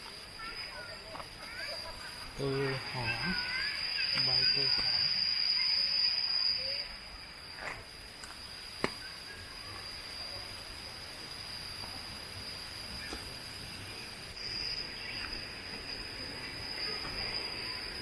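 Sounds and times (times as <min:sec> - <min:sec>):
insects buzzing steadily: 0:00.0 - 0:18.0.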